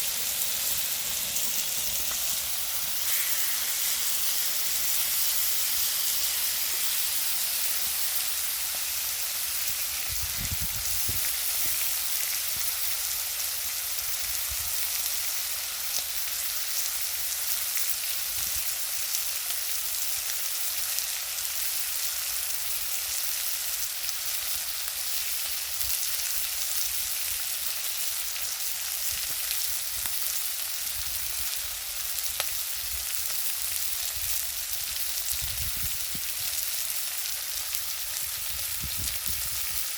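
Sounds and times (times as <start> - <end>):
wood fire crackling: 0.0 - 13.0, 29.2 - 39.9
food sizzling on a grill: 0.0 - 39.9.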